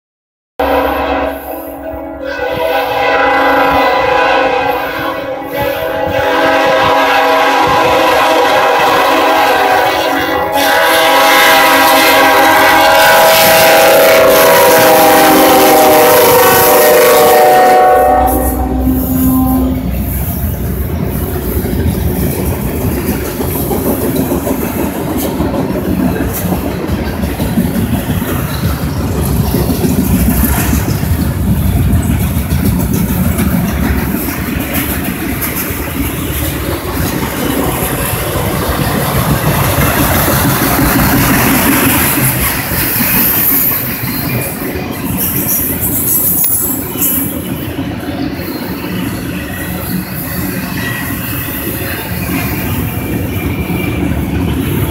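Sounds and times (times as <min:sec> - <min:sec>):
locomotive air horn: 0:00.6 - 0:20.1
freight cars clacking over rails: 0:20.0 - 0:45.9.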